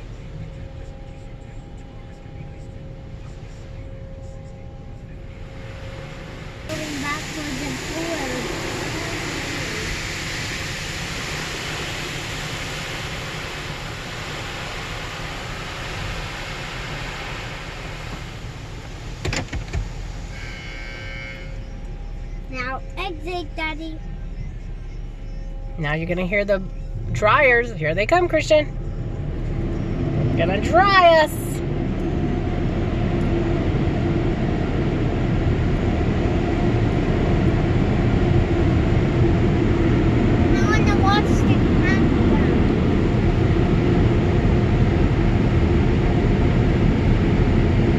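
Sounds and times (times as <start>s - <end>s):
low hum: 0.0s - 47.9s
car wash air dryers blowing: 5.2s - 23.1s, 25.8s - 47.9s
water spray pelting car: 6.6s - 20.4s.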